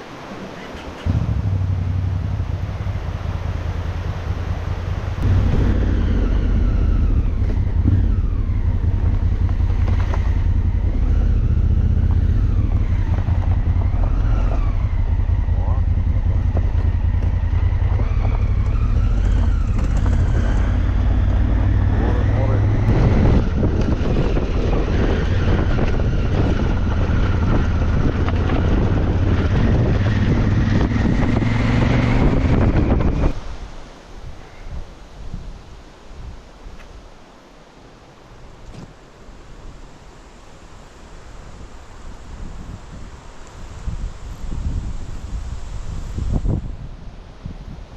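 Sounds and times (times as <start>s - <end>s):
wind rumble on microphone: 0.0s - 37.1s, 40.7s - 47.9s
motorcycle engine revving: 1.0s - 33.4s.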